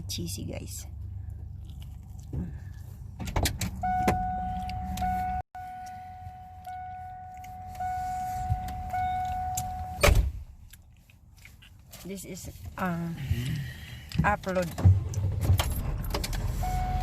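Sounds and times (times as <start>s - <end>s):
low vehicle rumble: 0.0s - 11.9s
high electronic beep tone: 3.8s - 10.1s, 16.6s - 17.0s.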